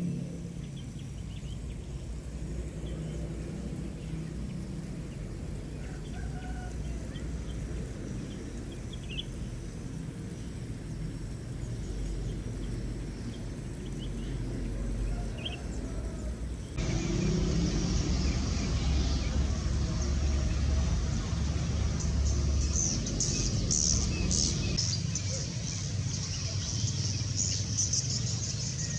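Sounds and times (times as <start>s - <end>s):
steady low rumble: 0.0s - 24.8s
birds chirping: 0.0s - 28.9s.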